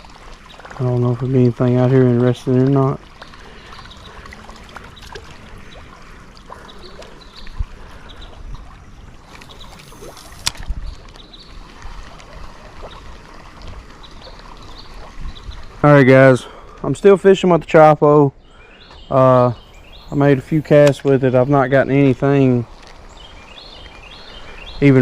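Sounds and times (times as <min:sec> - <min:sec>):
small clicks and splashes: 0:00.0 - 0:15.8, 0:22.6 - 0:24.9
creek water flowing: 0:00.0 - 0:25.0.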